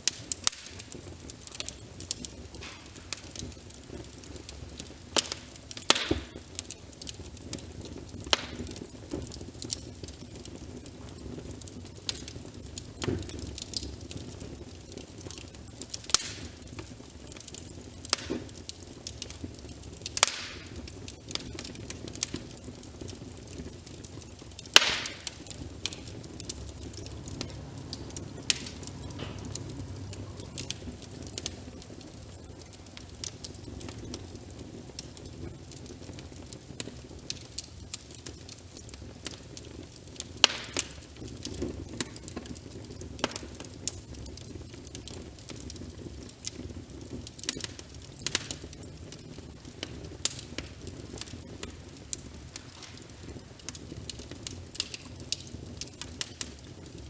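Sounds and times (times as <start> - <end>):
rain pattering: 0.0 - 57.0
wood fire crackling: 0.0 - 57.0
steady low rumble: 25.2 - 36.2.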